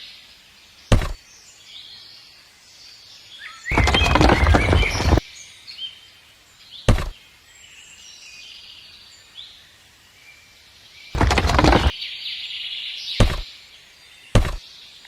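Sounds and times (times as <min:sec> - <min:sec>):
birds chirping: 0:00.0 - 0:15.0
sharp knock: 0:00.9 - 0:01.2, 0:06.9 - 0:07.2, 0:13.2 - 0:13.4, 0:14.4 - 0:14.6
rattle of rapid knocks: 0:03.7 - 0:05.2, 0:11.2 - 0:11.9, 0:13.2 - 0:13.4, 0:14.4 - 0:14.6.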